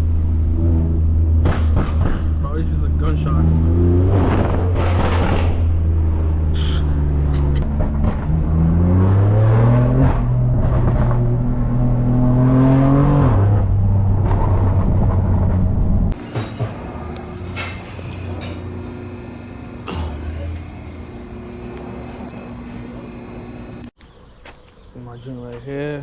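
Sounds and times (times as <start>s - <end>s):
car engine revving loud: 3.2s - 16.2s.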